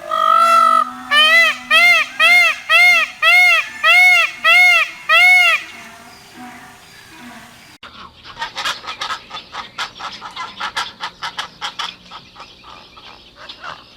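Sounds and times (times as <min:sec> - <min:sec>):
hen clucking: 0:00.0 - 0:07.7
loud arched bird call: 0:00.0 - 0:07.8.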